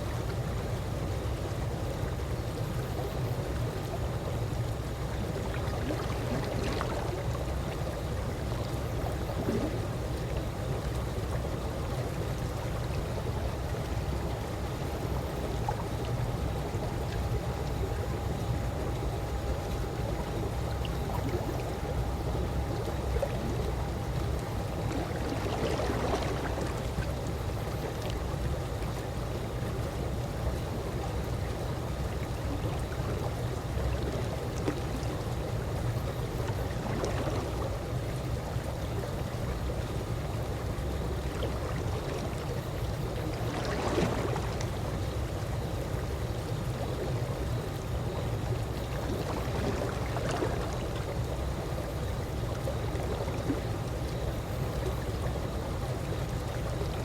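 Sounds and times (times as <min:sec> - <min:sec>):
pool water lapping: 0:00.0 - 0:57.0
soft water slaps: 0:43.3 - 0:44.8.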